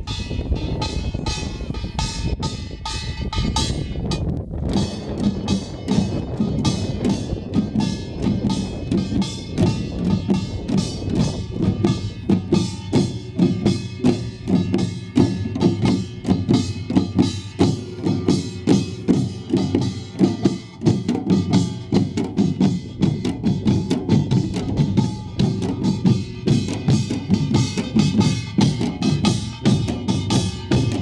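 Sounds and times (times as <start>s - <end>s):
barrel drums: 0.0s - 31.0s
ringing gong: 0.0s - 31.0s
small gongs clanging: 0.0s - 31.0s.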